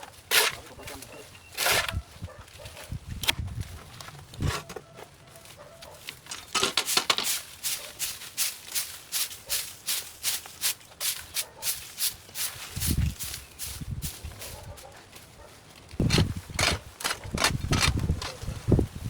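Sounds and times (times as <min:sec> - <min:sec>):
hand tool strokes: 0:00.0 - 0:02.0, 0:16.0 - 0:18.5.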